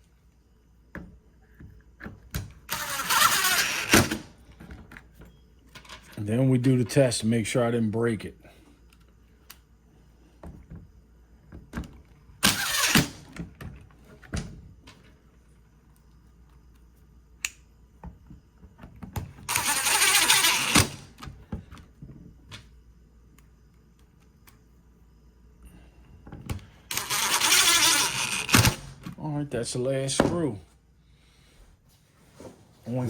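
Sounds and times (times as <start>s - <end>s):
power screwdriver driving screws: 2.7s - 4.2s, 12.4s - 13.3s, 19.5s - 21.1s, 26.9s - 29.0s.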